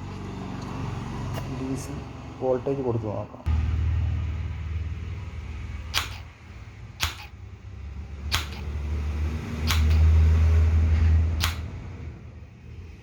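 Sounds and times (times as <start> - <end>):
door lock actuator clicking: 5.9 - 6.3, 7.0 - 7.4, 8.3 - 8.8, 9.6 - 10.2, 11.4 - 11.7.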